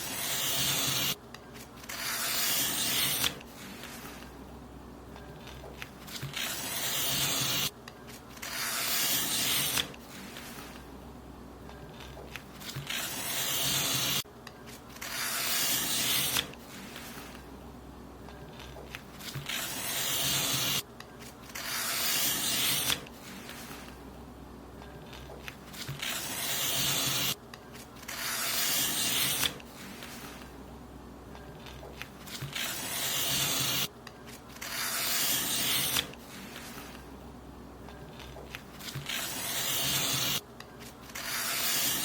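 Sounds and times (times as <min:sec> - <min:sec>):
paper being cut: 0:00.0 - 0:04.3, 0:05.4 - 0:07.7, 0:08.4 - 0:10.8, 0:12.0 - 0:14.2, 0:14.9 - 0:17.4, 0:18.6 - 0:20.8, 0:21.5 - 0:23.9, 0:25.1 - 0:27.4, 0:28.0 - 0:30.4, 0:31.6 - 0:37.0, 0:38.2 - 0:42.0.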